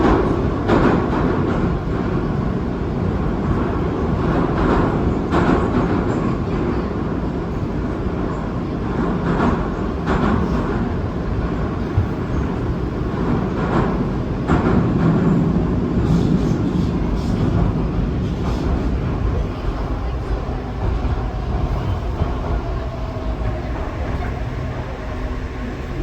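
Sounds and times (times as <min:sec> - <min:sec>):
train rumbling in tunnel: 0:00.0 - 0:26.0.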